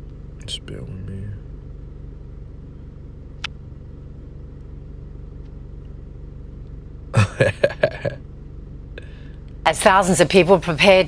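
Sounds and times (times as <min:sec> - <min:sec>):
voice: 0:07.2 - 0:08.2.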